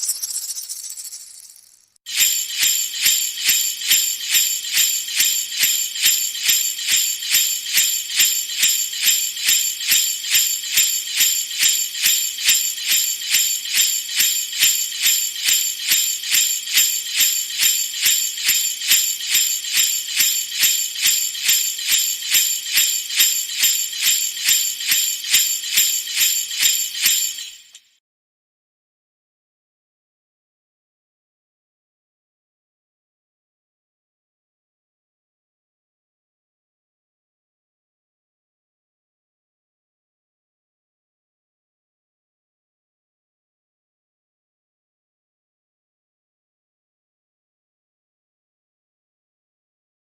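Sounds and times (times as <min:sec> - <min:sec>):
high-pitched metallic jingling: 0:00.0 - 0:27.8.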